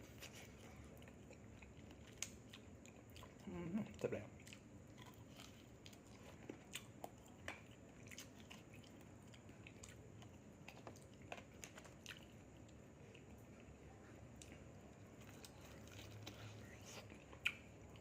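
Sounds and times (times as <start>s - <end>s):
chewing food: 0.0s - 18.0s.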